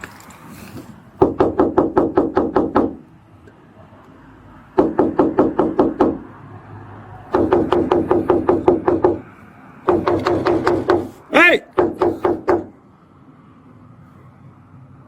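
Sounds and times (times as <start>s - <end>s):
rapid knocking on a door: 1.2s - 3.0s, 4.8s - 6.2s, 7.3s - 9.3s, 9.9s - 11.1s, 11.7s - 12.7s.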